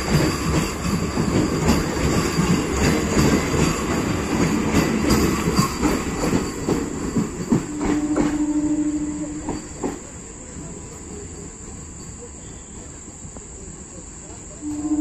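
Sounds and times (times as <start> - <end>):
train wheels knocking over rail joints: 0.0 - 11.8.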